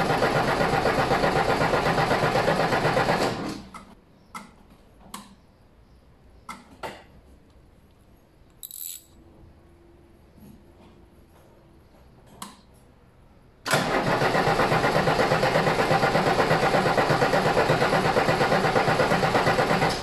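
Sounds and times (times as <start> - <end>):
diesel engine cranking on starter: 0.0 - 3.7, 13.6 - 20.0.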